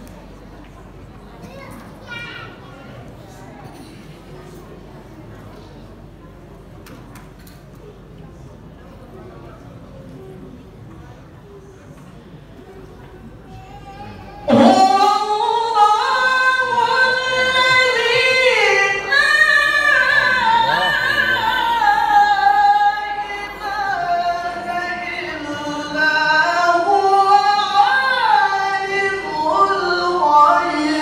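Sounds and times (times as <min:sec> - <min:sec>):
person chanting melodic recitation: 0:14.4 - 0:31.0.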